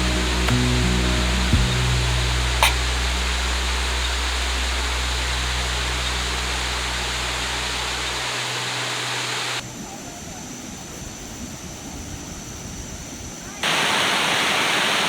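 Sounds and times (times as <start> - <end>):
low hum: 0.0 - 9.6
waterfall rushing: 0.0 - 9.6, 13.6 - 15.0.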